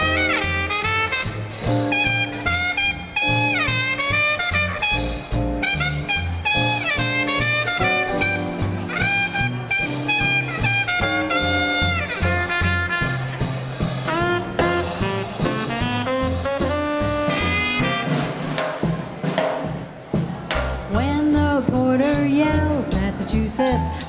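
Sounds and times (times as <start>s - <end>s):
saxophone: 0.0s - 18.4s
trumpet: 0.0s - 18.6s.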